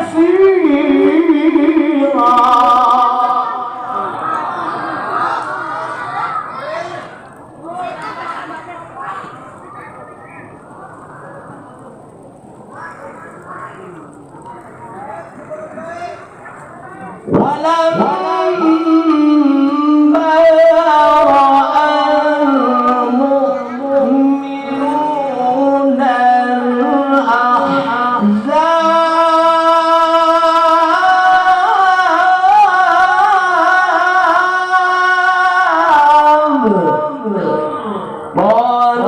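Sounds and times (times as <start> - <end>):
man reciting melodically: 0.0 - 4.2, 17.2 - 39.0.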